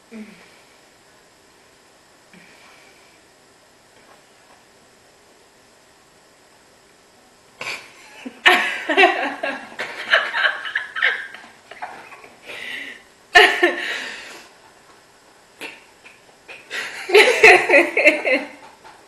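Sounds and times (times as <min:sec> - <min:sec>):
woman laughing: 0:07.7 - 0:12.2, 0:12.9 - 0:14.1, 0:16.0 - 0:18.7.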